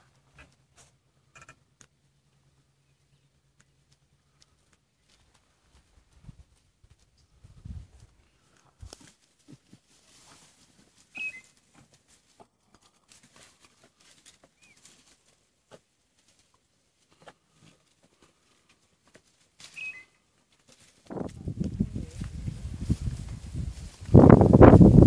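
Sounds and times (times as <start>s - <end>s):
faint clicks and rustles: 3.3s - 24.7s
bird high note: 11.2s - 11.5s
bird two-part chirp: 11.2s - 11.5s, 19.7s - 20.2s.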